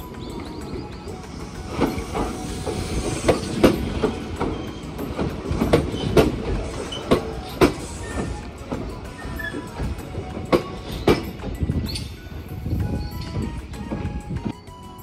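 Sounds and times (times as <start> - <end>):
wheels clacking over rail joints: 0.0 - 14.6
train rolling rumble: 0.0 - 15.0.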